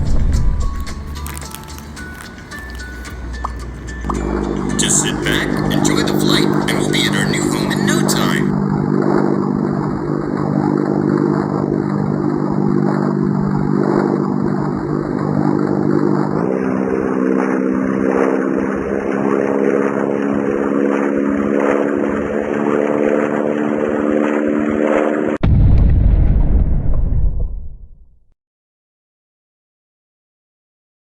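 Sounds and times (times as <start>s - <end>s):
airplane engine drone: 0.0s - 25.4s.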